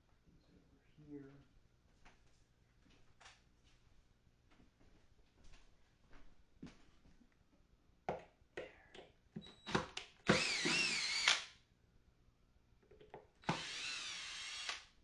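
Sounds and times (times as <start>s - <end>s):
cordless drill running: 9.6s - 11.5s, 13.4s - 14.9s.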